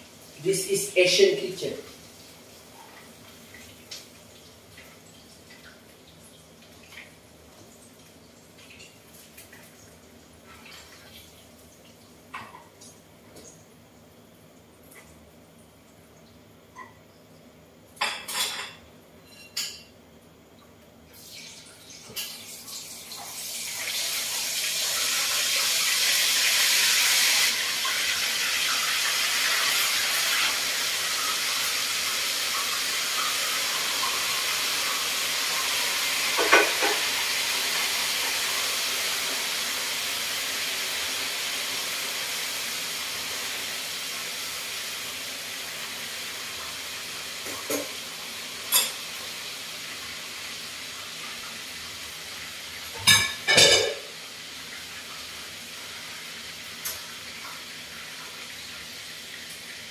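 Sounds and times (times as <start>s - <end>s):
food sizzling in hot oil: 21.1s - 59.9s.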